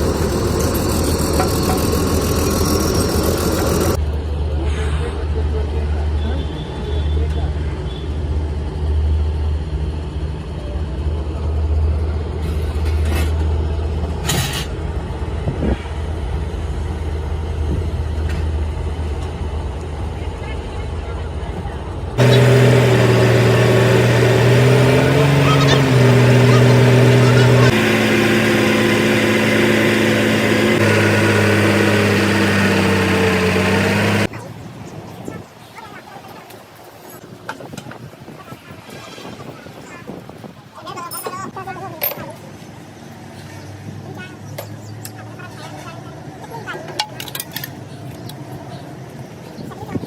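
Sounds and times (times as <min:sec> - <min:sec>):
diesel engine rumbling: 0:00.0 - 0:06.1, 0:08.1 - 0:34.4.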